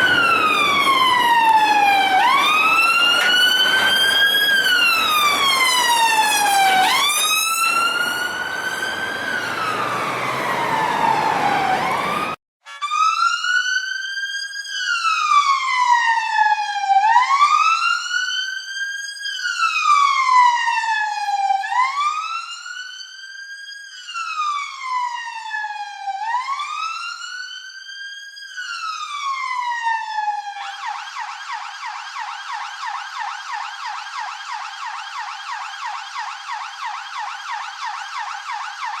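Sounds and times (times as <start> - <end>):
police siren wailing: 0.0 - 13.4, 15.3 - 17.8, 28.6 - 39.0
siren yelp: 0.0 - 13.8, 28.5 - 39.0.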